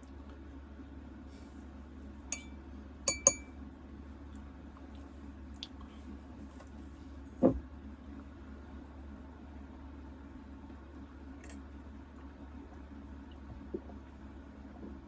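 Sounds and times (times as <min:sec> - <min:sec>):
steady low hum: 0:00.0 - 0:03.6
tableware clinking: 0:02.3 - 0:02.5, 0:03.1 - 0:03.5.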